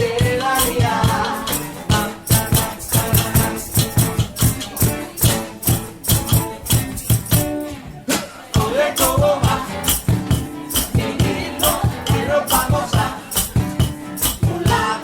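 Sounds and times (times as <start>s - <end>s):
shaker and tambourine beat: 0.0s - 15.0s
guitar and bass chords: 8.6s - 15.0s.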